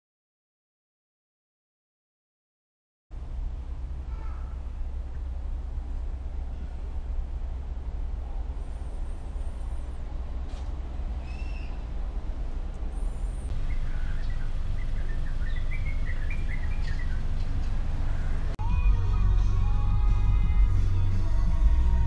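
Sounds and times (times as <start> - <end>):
low rumble: 3.1 - 22.0
birds chirping: 11.2 - 11.9, 12.9 - 18.6.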